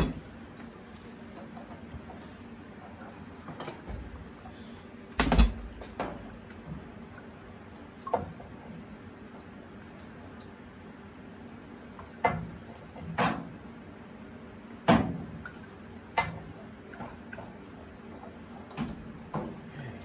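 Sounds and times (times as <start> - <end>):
pipe fittings knocking and clanking: 5.2 - 6.2.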